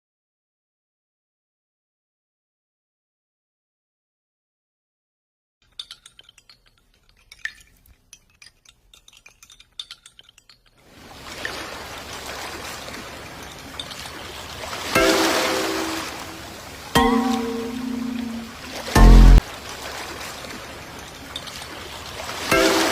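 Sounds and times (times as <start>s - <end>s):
loud sound with held tones: 15.0s - 19.4s.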